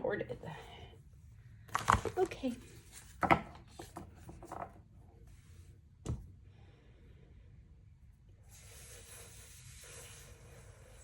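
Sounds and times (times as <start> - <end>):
cards being shuffled: 1.7 - 4.6.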